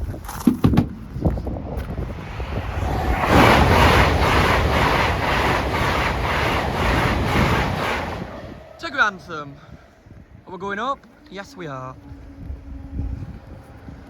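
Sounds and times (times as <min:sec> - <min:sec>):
train passing at speed: 0:01.8 - 0:10.4.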